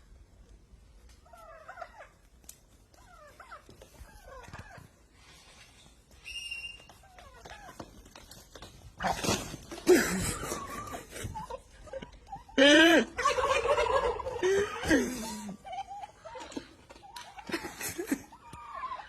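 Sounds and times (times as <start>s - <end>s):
turkeys gobbling: 1.1s - 5.1s, 9.0s - 19.0s.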